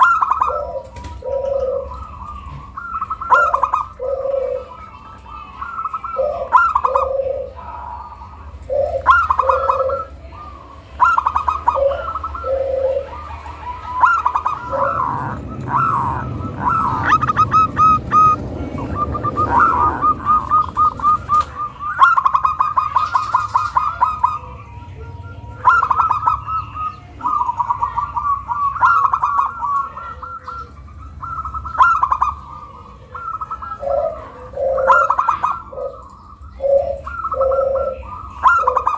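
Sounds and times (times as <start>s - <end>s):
dove trilled cooing: 0.0s - 38.9s.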